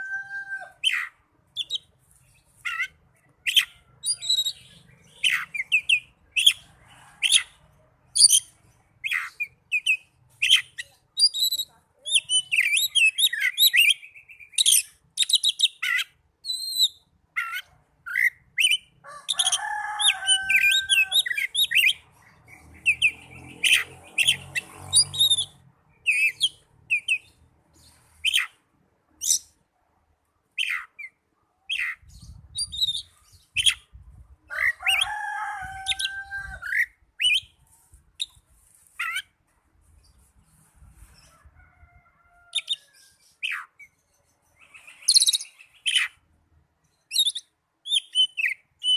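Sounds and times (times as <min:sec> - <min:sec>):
bird whistles and chirps: 0:25.0 - 0:27.2, 0:47.1 - 0:48.9.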